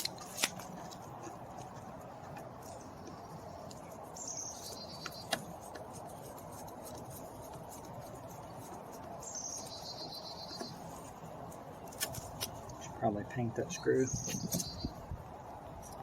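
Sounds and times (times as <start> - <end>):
bird trilling call: 14.1 - 14.9.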